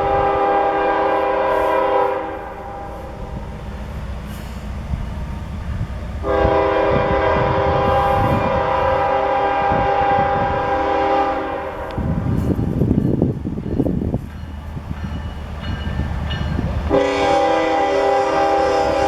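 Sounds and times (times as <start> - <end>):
locomotive air horn blast: 0.0 - 3.2, 6.2 - 12.3, 16.9 - 19.0
train rumble and rattle: 0.0 - 19.0.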